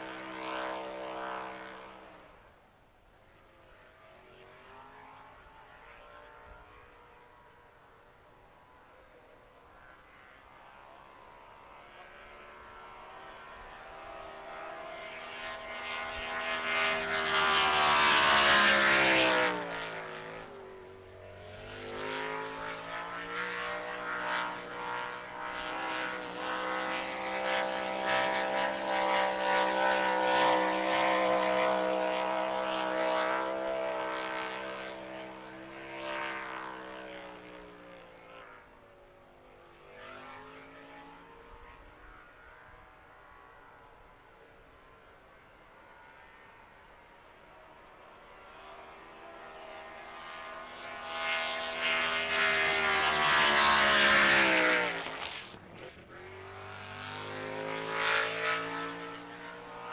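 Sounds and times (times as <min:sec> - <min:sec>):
racing boat engine running hard: 0:23.1 - 0:38.4, 0:49.4 - 0:54.4.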